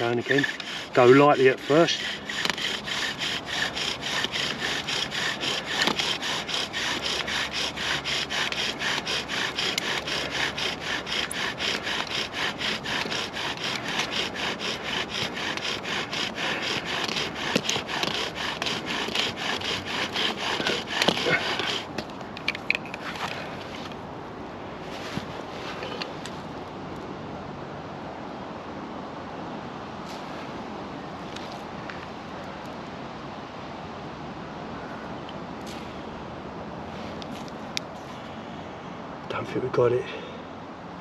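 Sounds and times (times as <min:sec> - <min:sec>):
bow drill spindle grinding wood: 0:00.0 - 0:22.5.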